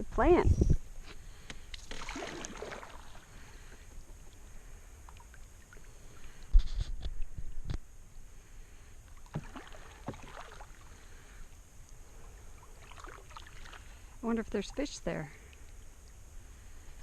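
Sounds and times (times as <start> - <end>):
paddle and water noises: 0.0 - 17.0.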